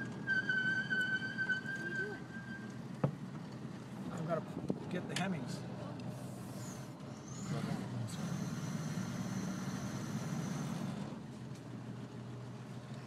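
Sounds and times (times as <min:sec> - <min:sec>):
road noise: 0:00.0 - 0:13.0
car engine running: 0:02.6 - 0:13.0.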